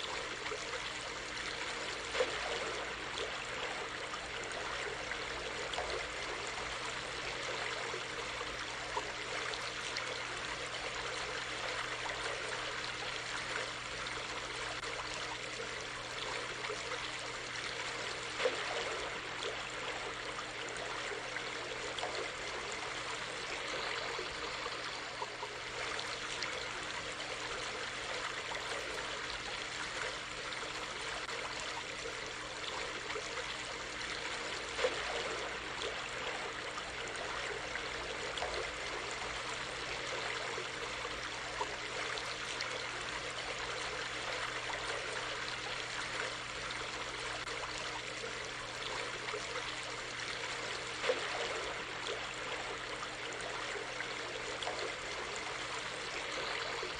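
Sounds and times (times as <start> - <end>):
stream flowing water: 0.0 - 56.9.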